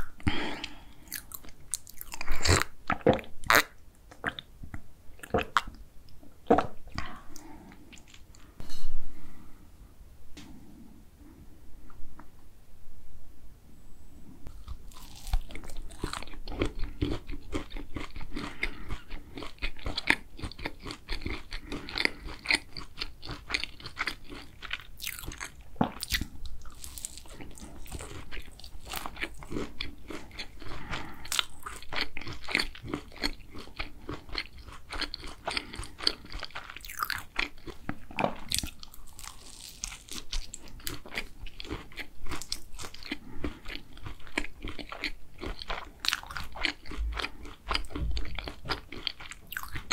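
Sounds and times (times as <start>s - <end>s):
crunchy chewing: 0.0s - 4.5s, 14.5s - 49.9s.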